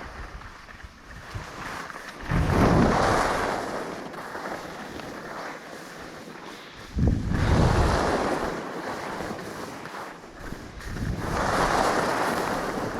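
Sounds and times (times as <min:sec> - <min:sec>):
skis sliding over snow: 0:00.0 - 0:12.9
wind on microphone: 0:00.0 - 0:12.9.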